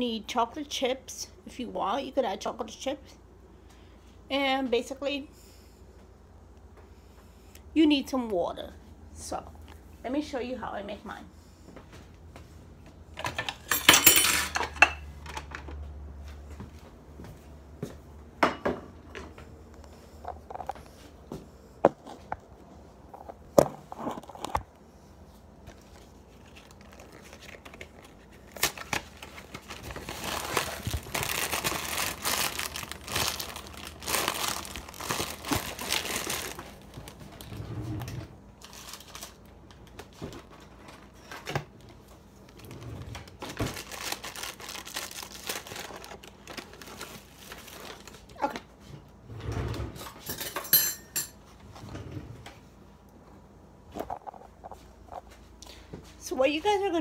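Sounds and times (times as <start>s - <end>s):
food packaging crinkling and tearing: 25.6s - 37.6s, 38.5s - 48.7s.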